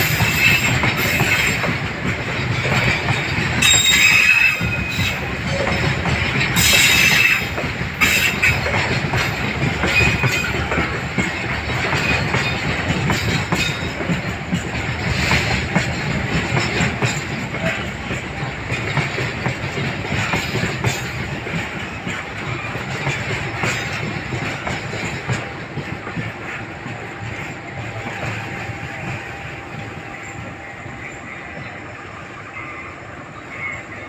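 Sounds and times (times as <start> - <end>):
freight train wheels rumbling: 0.0 - 34.0
high wheel squeals: 3.6 - 5.9, 6.6 - 8.6.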